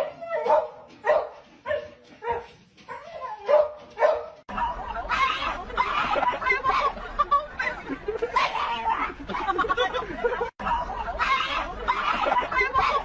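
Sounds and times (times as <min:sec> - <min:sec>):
dog barking: 0:00.0 - 0:04.4.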